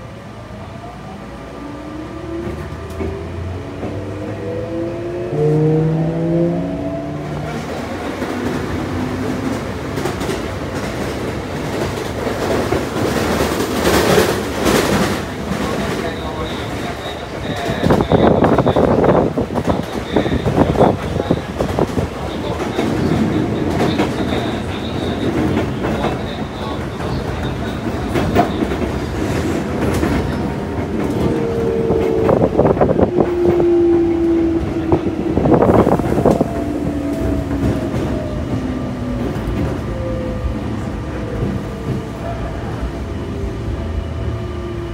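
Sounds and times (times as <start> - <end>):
train wheel and rail rumble: 0.0 - 44.9
clacks over rail joints: 19.6 - 33.6.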